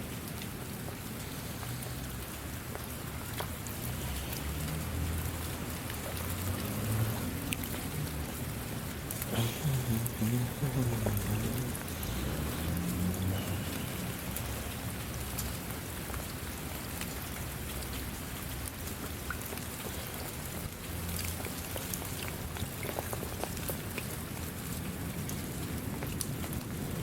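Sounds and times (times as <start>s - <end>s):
rain drops ticking on surface: 0.0s - 27.0s.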